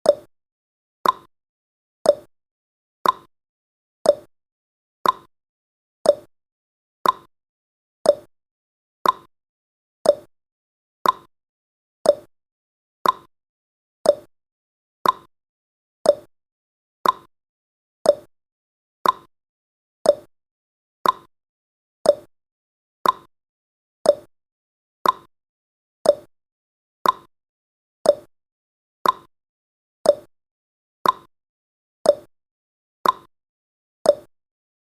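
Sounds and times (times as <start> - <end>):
clock-like ticks: 0.0 - 0.3, 1.0 - 1.3, 2.0 - 2.3, 3.0 - 3.3, 4.0 - 4.3, 5.0 - 5.3, 6.0 - 6.3, 7.0 - 7.3, 8.0 - 8.3, 9.0 - 9.3, 10.0 - 10.3, 11.0 - 11.3, 12.0 - 12.3, 13.0 - 13.3, 14.0 - 14.3, 15.0 - 15.3, 16.0 - 16.3, 17.0 - 17.3, 18.0 - 18.3, 19.0 - 19.3, 20.0 - 20.3, 21.0 - 21.3, 22.0 - 22.3, 23.0 - 23.3, 24.0 - 24.3, 25.0 - 25.3, 26.0 - 26.3, 27.0 - 27.3, 28.0 - 28.3, 29.0 - 29.3, 30.0 - 30.3, 31.0 - 31.3, 32.0 - 32.3, 33.0 - 33.3, 34.0 - 34.3.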